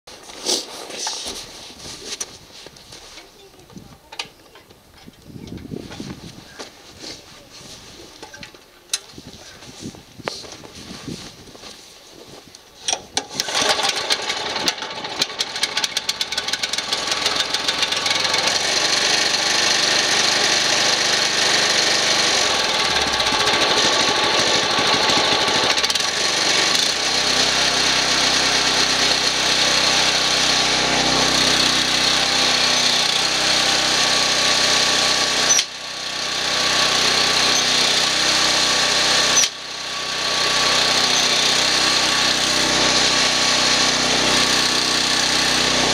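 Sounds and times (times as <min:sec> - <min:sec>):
small engine starting and running: 0:12.9 - 0:45.9.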